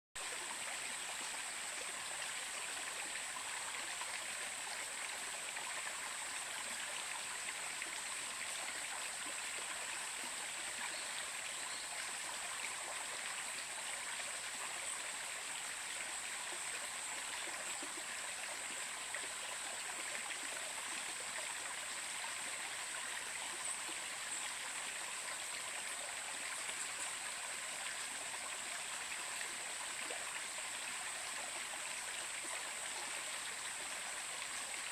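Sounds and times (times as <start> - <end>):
stream water flowing over rocks: 0.2 - 34.9.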